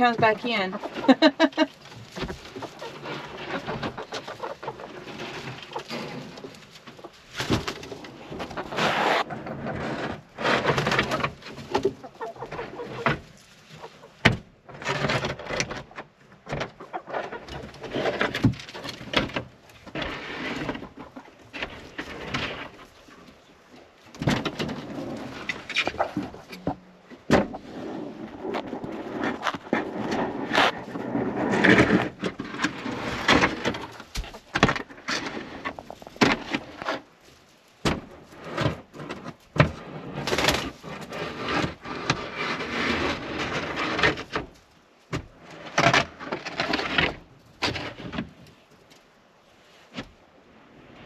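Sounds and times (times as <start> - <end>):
hens clucking: 0.0 - 37.1
knocks bumps and scraping: 0.0 - 49.0.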